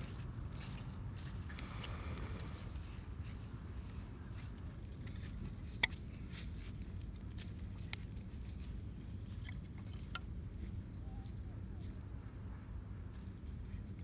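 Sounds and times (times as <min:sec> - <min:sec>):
low steady rumble: 0:00.0 - 0:04.6
wood fire crackling: 0:01.4 - 0:02.7.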